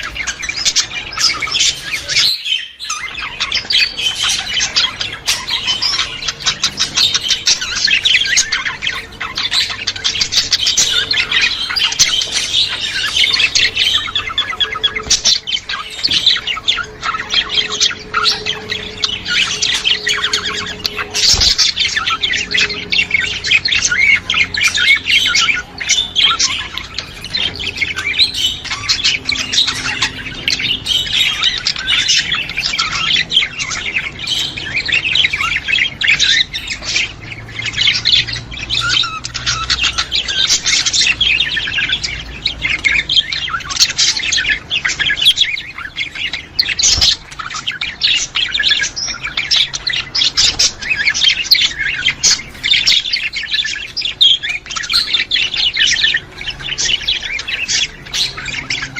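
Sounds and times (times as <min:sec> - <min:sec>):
flock of budgerigars chattering: 0:00.0 - 0:58.9.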